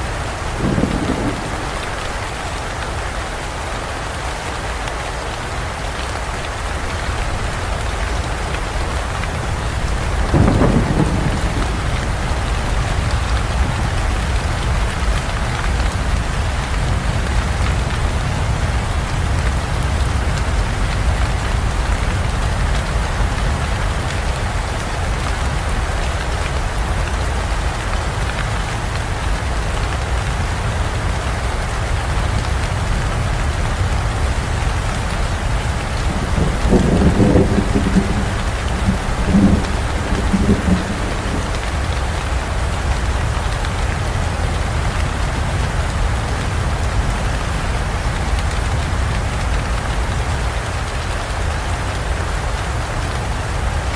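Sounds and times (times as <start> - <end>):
heavy rain: 0.0 - 53.9
thunder rumbling: 0.2 - 3.4, 6.8 - 23.5, 32.8 - 43.5
thunderclap: 0.4 - 3.0, 8.8 - 19.1, 33.8 - 42.7.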